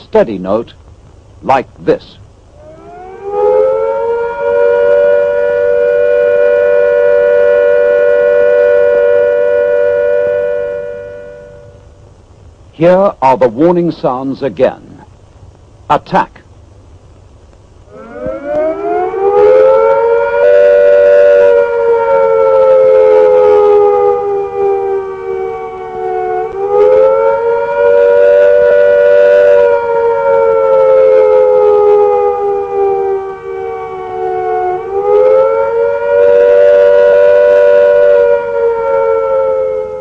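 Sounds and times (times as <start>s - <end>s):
air-raid siren wailing: 2.5s - 12.1s, 17.9s - 40.0s.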